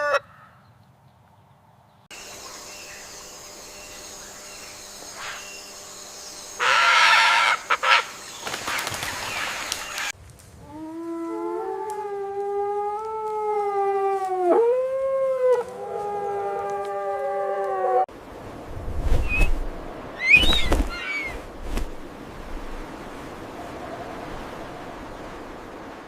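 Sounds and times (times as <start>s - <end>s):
dog howling: 11.1s - 18.1s.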